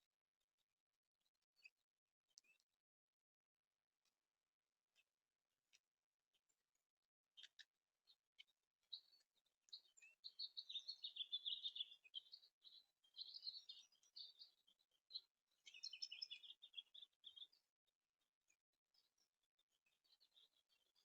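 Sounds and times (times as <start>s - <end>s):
songbirds chirping: 1.3s - 2.8s, 5.7s - 21.0s.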